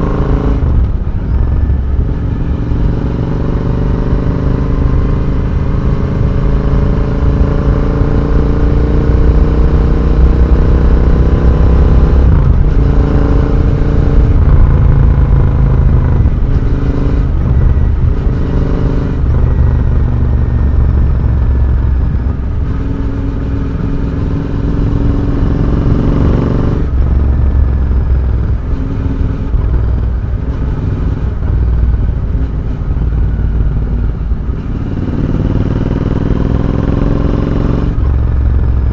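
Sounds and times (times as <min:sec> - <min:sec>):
motorcycle engine revving through gears: 0:00.0 - 0:38.9.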